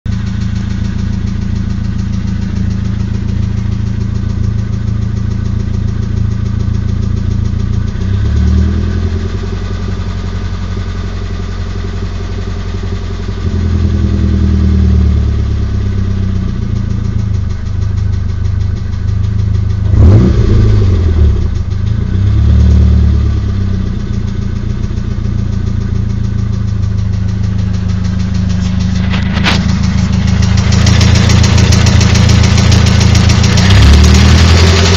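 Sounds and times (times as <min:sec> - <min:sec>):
car engine idling with tapping: 0:00.1 - 0:34.9
loud engine knock: 0:00.1 - 0:34.9
engine revving: 0:07.8 - 0:10.0, 0:19.7 - 0:23.6, 0:27.1 - 0:34.9.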